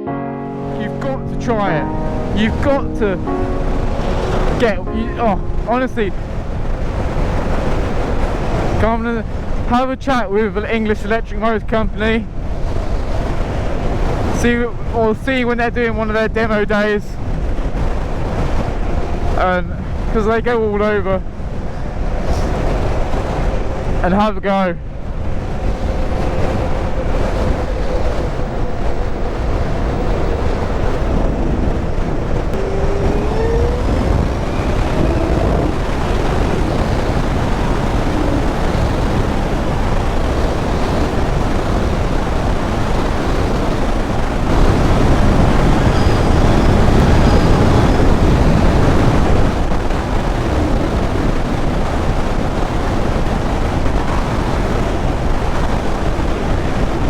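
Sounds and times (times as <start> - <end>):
wind rush on microphone: 0.7 - 57.0
electric motor whine: 32.5 - 38.8.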